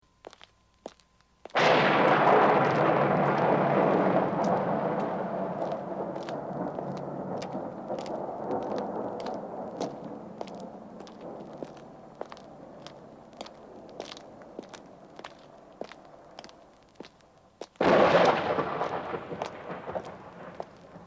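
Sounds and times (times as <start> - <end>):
loud thunder-like crash: 1.6 - 12.0, 17.8 - 21.0.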